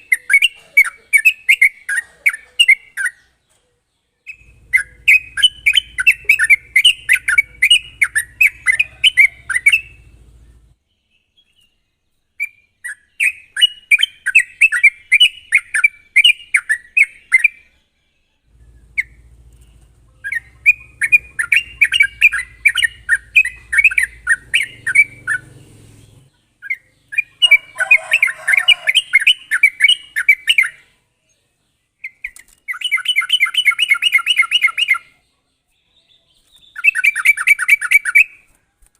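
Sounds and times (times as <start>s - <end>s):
bird chattering song: 0.0s - 38.5s.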